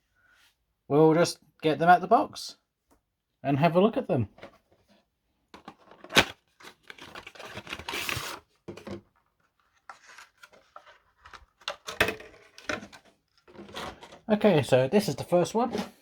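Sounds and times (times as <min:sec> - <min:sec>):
packaging rustling and clicking: 0:05.6 - 0:14.3.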